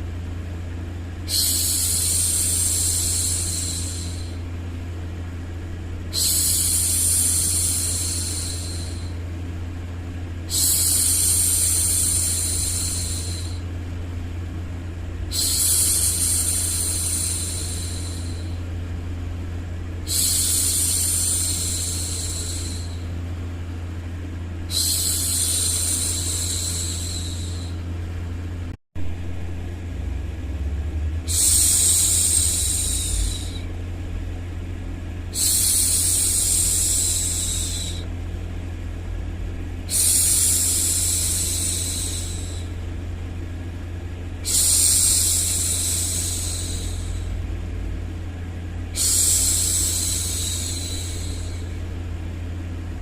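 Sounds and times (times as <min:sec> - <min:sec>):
low rumbling white noise: 0:00.0 - 0:53.0
woman making hushing sounds: 0:31.3 - 0:33.7.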